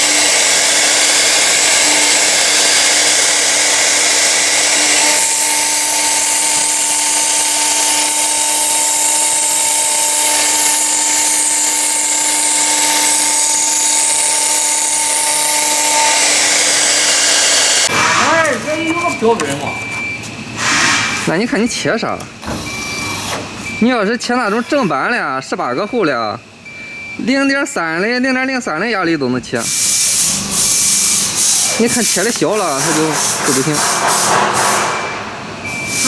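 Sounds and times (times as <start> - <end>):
cutting machine whine: 0.0 - 21.2, 29.6 - 36.0.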